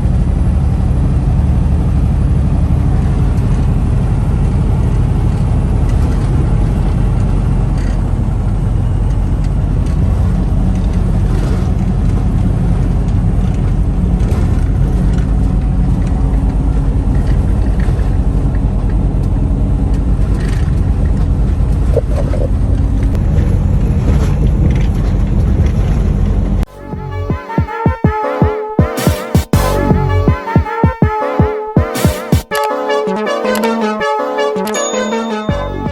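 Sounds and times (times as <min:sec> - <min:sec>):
road noise: 0:00.0 - 0:27.3
truck engine rumble: 0:00.0 - 0:27.4, 0:29.6 - 0:30.8.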